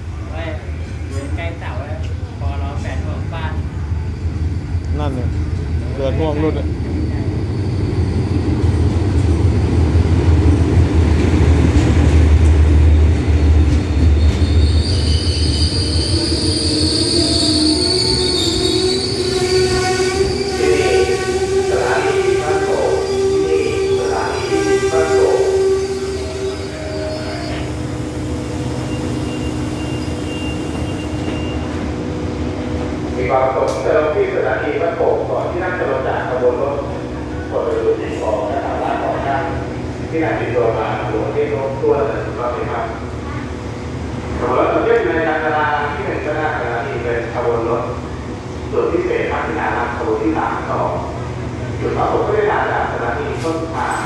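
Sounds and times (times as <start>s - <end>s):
diesel train engine rumbling: 0.0s - 54.0s
wheel squeal: 14.2s - 19.7s, 28.8s - 31.7s.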